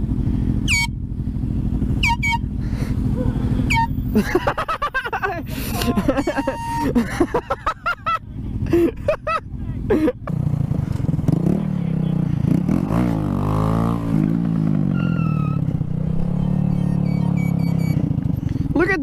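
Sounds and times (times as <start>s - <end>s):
small motorcycle engine revving: 0.0s - 7.5s, 9.9s - 18.9s
short honking toots: 0.6s - 1.0s, 2.0s - 2.6s, 3.2s - 4.1s, 5.7s - 7.1s, 16.2s - 18.1s.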